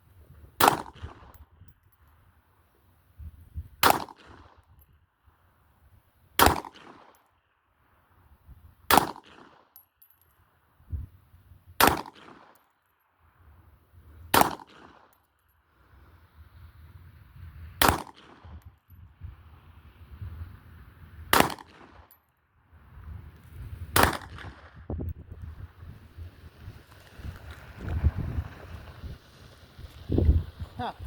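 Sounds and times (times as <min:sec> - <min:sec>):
gunshots with echo: 0:21.4 - 0:21.9.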